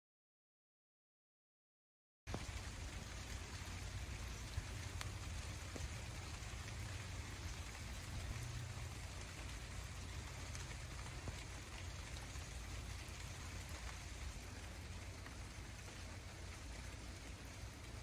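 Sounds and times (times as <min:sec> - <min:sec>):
rain falling: 0:02.3 - 0:18.0
faint ticks: 0:04.3 - 0:14.4.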